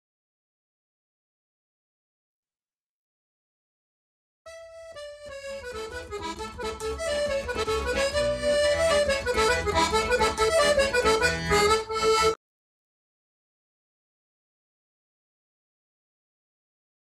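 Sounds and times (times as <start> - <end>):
accordion-led traditional music: 4.5 - 12.4.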